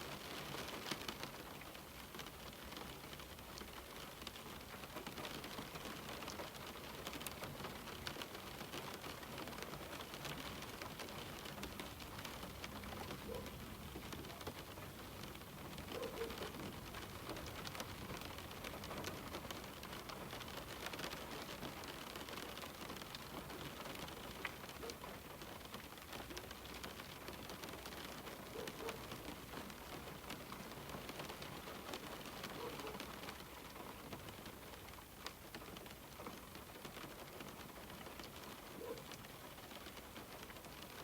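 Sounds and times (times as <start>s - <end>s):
rain pattering on window glass: 0.0s - 41.0s
pigeon cooing: 15.9s - 16.6s.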